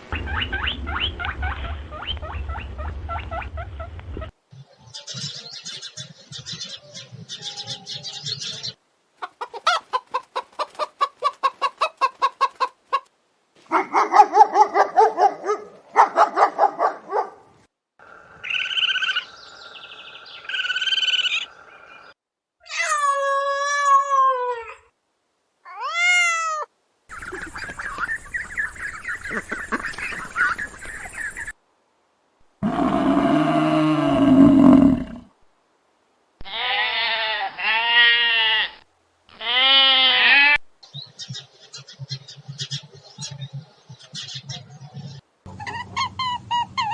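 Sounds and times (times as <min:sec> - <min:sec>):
farm animal calls: 0:32.6 - 0:35.3.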